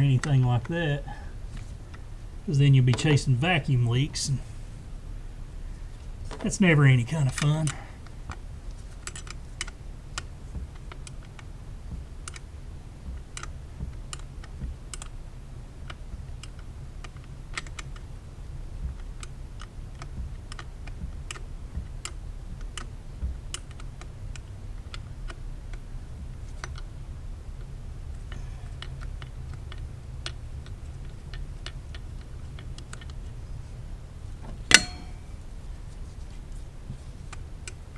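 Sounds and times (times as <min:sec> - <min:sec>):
low steady hum: 0:00.0 - 0:37.9
hand tool metallic clicks: 0:34.7 - 0:35.3.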